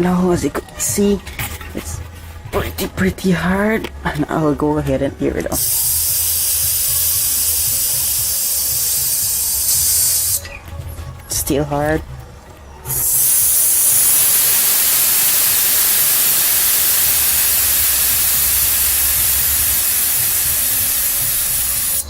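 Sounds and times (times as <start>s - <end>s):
air hissing out of tyre: 5.6s - 10.5s, 12.8s - 22.0s.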